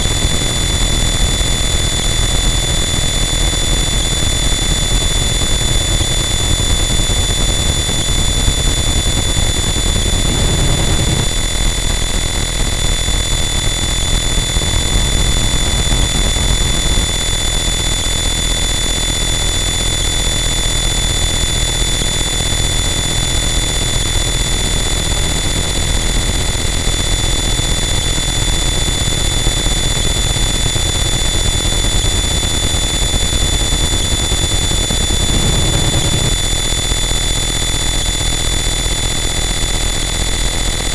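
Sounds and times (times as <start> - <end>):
high-pitched whines: 0.0 - 40.9
distorted static noise: 10.0 - 11.4.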